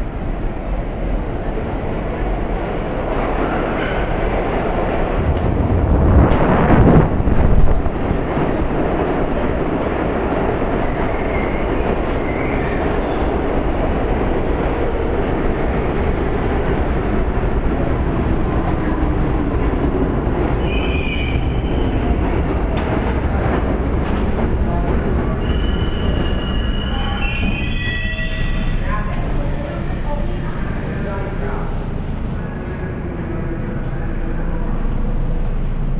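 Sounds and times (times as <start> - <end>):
subway train wheels rumbling on rails: 0.0 - 35.9
high wheel squeals: 25.3 - 28.9.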